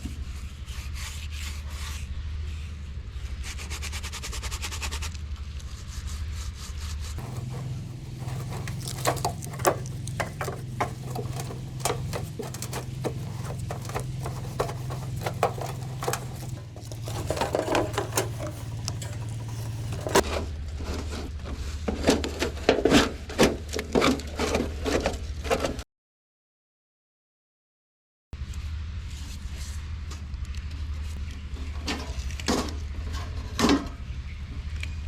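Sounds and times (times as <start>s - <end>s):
clicking tapping and scraping: 7.2s - 20.2s.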